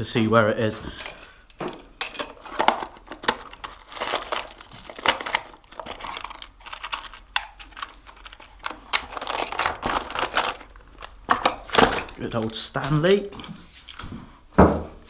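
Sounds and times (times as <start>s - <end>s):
plastic crinkling: 2.3s - 14.1s.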